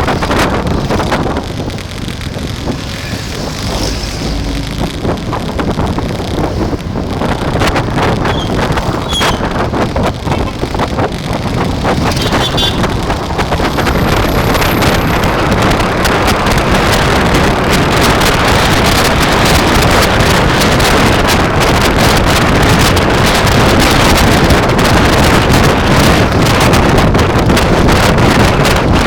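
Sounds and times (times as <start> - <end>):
crackles and knocks: 0.0 - 8.8
wind rushing over microphone: 0.0 - 29.0.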